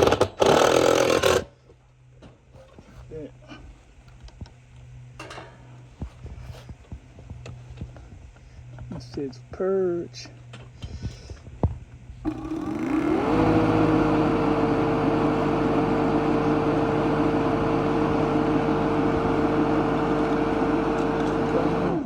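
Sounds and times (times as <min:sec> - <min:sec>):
compressor motor humming: 0:06.9 - 0:22.0.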